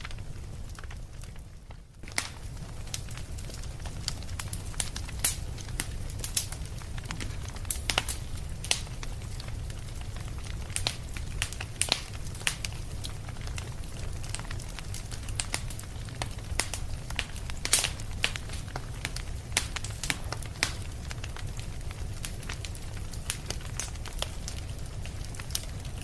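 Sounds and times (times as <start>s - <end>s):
wood fire crackling and popping: 0.0s - 26.0s
steady low rumble: 5.0s - 11.8s.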